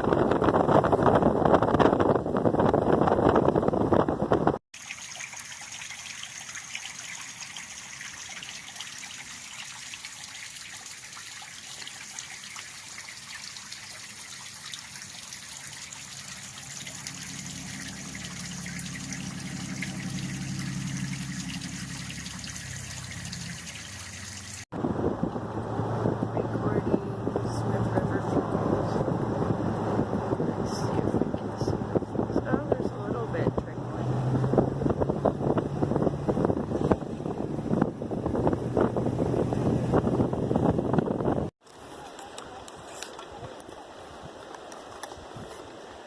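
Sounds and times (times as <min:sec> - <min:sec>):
river water rushing: 0:04.8 - 0:24.6.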